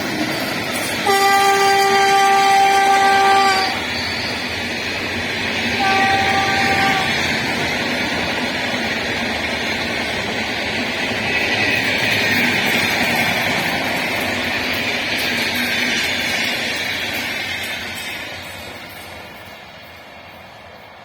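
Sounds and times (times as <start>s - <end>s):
train rumbling on track: 0.0s - 21.0s
locomotive horn blast: 1.0s - 3.9s, 5.8s - 7.2s.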